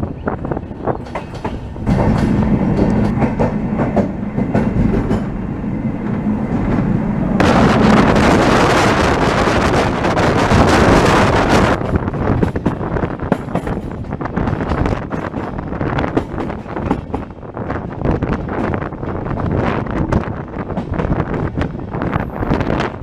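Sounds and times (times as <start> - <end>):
wind rushing on microphone: 0.0 - 23.0
train wheels clicking over rail joints: 0.9 - 23.0.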